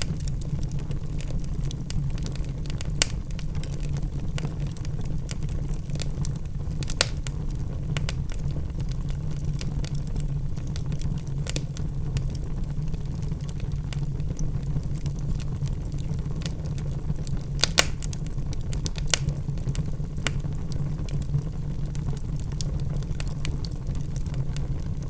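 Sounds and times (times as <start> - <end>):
fire popping: 0.0 - 25.0
low rumble of flames: 0.0 - 25.0
logs crackling: 6.8 - 7.3, 14.6 - 19.3.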